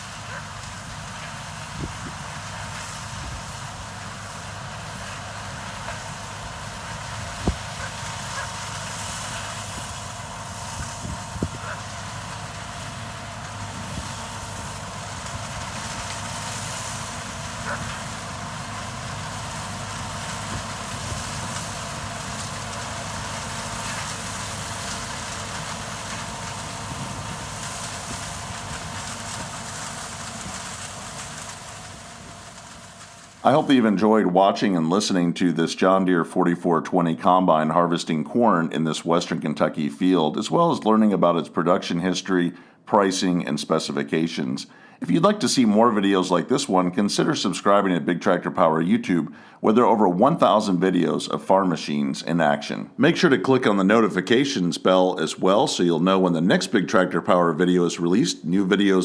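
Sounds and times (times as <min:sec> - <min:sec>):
combine harvester drone: 0:00.0 - 0:35.4.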